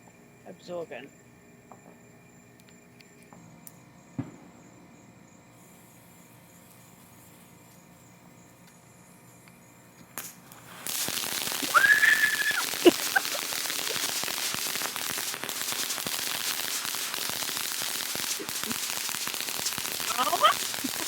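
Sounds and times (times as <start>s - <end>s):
insect chirping: 0.0s - 21.0s
firework hissing and crackling: 3.1s - 21.0s
firework whistle: 10.2s - 21.0s.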